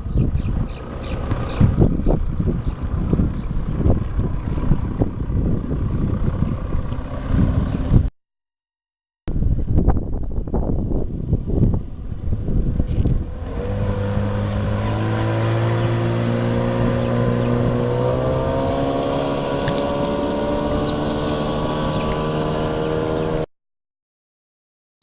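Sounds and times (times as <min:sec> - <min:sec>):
wind rumble on microphone: 0:00.0 - 0:08.1, 0:09.3 - 0:23.4
outboard motor running: 0:00.2 - 0:08.1, 0:11.8 - 0:23.4.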